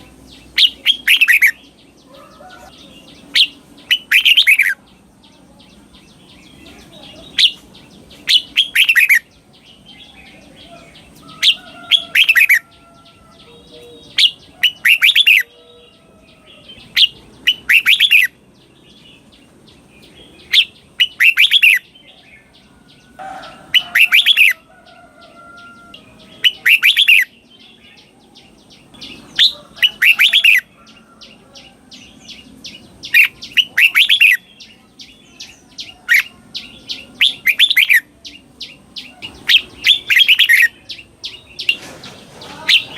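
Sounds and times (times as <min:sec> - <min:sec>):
bird singing whistled phrases: 0:08.2 - 0:09.3, 0:13.6 - 0:15.5, 0:17.0 - 0:18.3, 0:20.5 - 0:21.9, 0:26.4 - 0:27.4.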